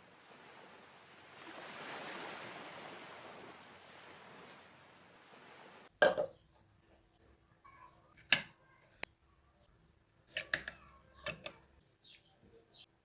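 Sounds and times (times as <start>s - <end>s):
objects clicking and knocking: 10.3s - 11.7s.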